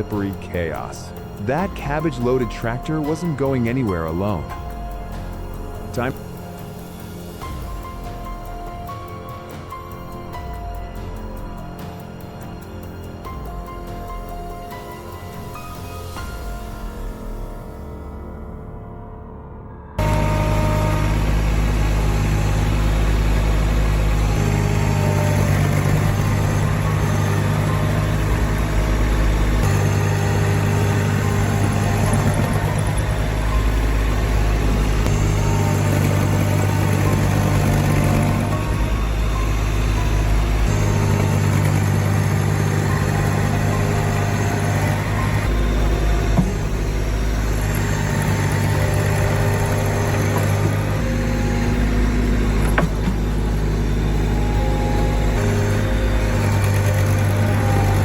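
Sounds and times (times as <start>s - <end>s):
tractor engine droning: 0.0s - 18.7s, 20.0s - 58.0s.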